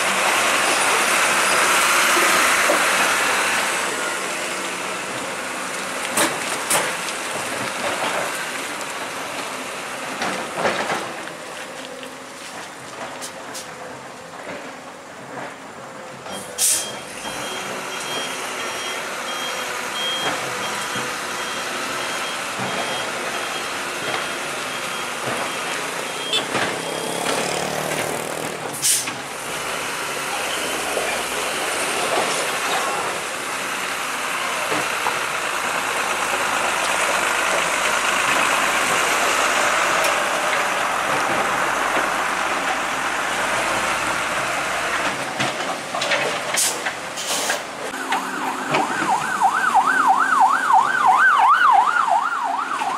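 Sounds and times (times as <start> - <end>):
heavy vehicle engine under load: 0.0 - 52.9
reversing alarm beeping: 16.3 - 27.2, 47.9 - 52.9
burst of hiss: 16.6 - 16.9.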